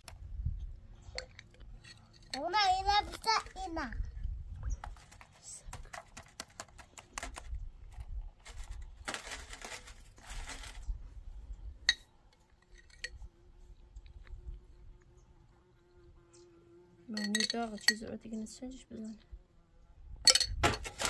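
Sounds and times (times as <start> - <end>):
clicks and knocks of small objects: 1.0 - 3.7, 4.7 - 11.0, 17.2 - 18.0, 20.3 - 21.0
rustling: 4.7 - 11.2.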